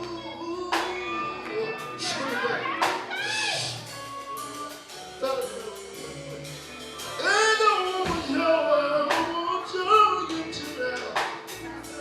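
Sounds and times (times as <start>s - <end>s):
band accompaniment: 0.0s - 12.0s
gospel group singing: 0.0s - 12.0s.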